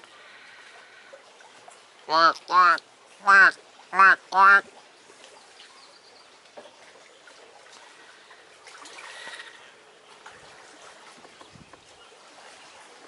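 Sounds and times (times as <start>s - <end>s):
water lapping at shore: 0.0s - 13.0s.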